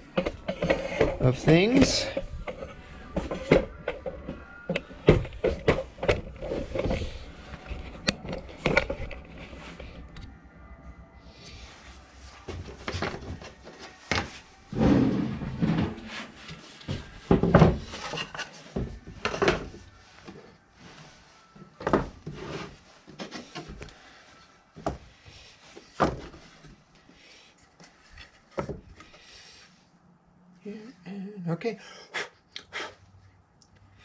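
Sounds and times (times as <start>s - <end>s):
objects knocking and thudding: 0.0s - 9.9s, 12.5s - 20.4s, 21.8s - 23.9s, 25.8s - 26.7s, 28.5s - 29.1s
scraping or rubbing: 11.7s - 16.8s.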